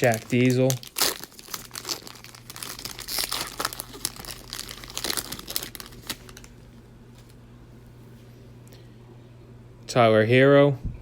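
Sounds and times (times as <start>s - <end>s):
trading cards rustling and shuffling: 0.0s - 7.4s.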